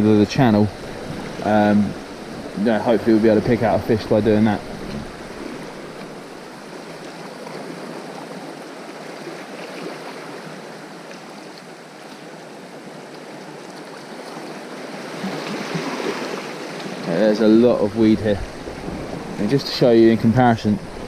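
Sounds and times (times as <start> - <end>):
sea water lapping on rocks: 0.7 - 8.4.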